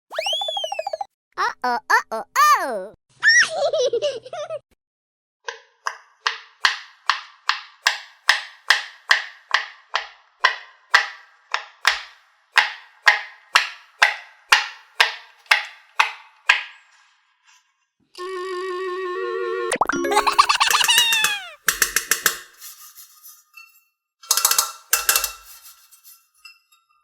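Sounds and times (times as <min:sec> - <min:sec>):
wobbling cartoon sound effect: 0:00.1 - 0:01.1, 0:19.7 - 0:21.6.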